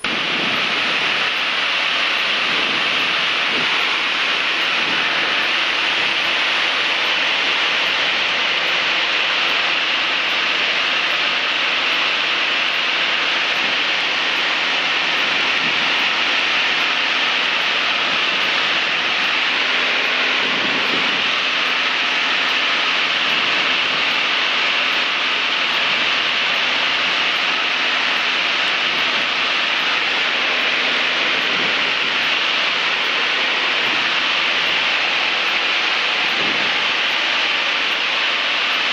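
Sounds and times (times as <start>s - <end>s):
propeller plane engine drone: 0.0s - 38.9s.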